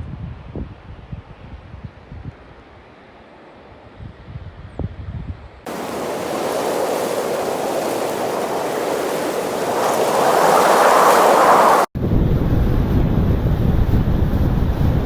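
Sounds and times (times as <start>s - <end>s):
flowing water rushing: 5.7s - 11.9s
wind on microphone: 5.7s - 15.0s.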